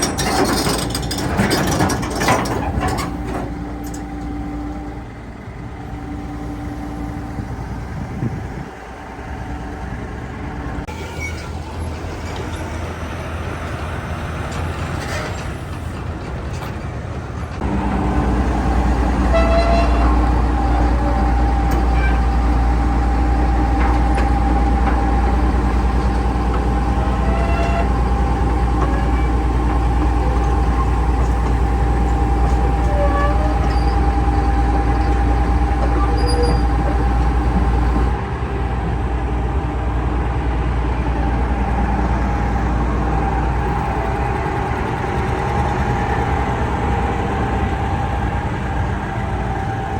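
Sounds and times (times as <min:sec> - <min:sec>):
excavator diesel engine whining: 0:00.0 - 0:49.9
faint squeaks: 0:35.8 - 0:37.2.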